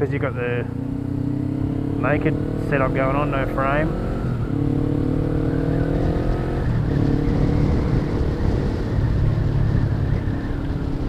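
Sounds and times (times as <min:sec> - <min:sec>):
motorcycle engine at speed: 0:00.0 - 0:11.0
wind rush: 0:04.0 - 0:11.0.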